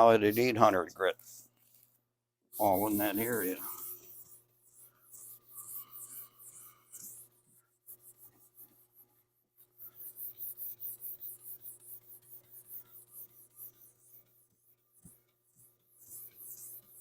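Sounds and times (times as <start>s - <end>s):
sandpaper sanding strokes: 2.6s - 8.7s.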